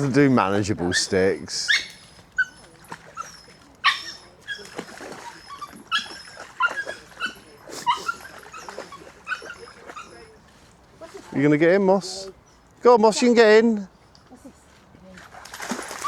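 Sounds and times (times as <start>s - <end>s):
dog whimpering: 0.9s - 10.4s
dog yipping: 0.9s - 10.4s.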